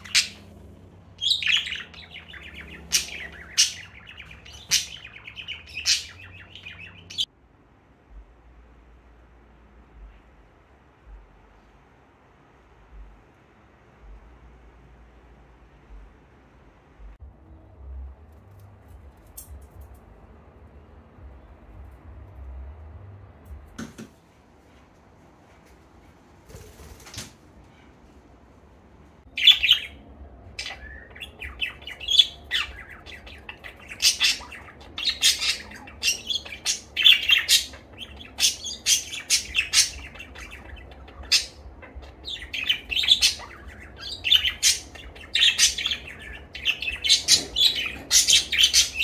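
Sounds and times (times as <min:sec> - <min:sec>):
budgerigar chirping: 0:00.0 - 0:00.6, 0:01.2 - 0:07.3, 0:30.6 - 0:49.0
bird wings flapping: 0:26.4 - 0:27.4.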